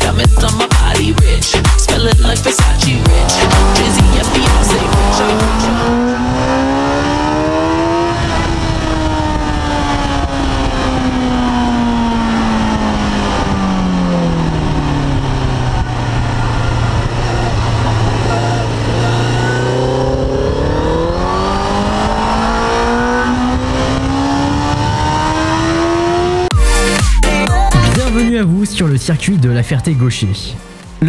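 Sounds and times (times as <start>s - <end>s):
motorcycle engine at speed: 1.7s - 26.5s.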